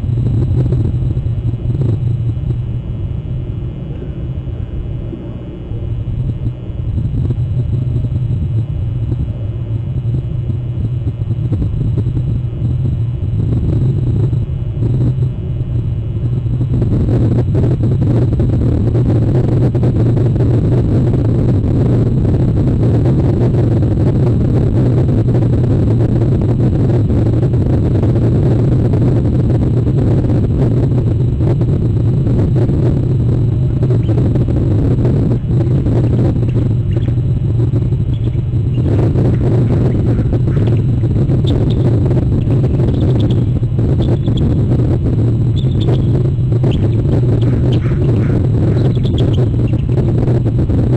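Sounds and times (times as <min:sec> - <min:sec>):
low rumble: 0:00.0 - 0:50.9
hissing noise: 0:33.0 - 0:50.7.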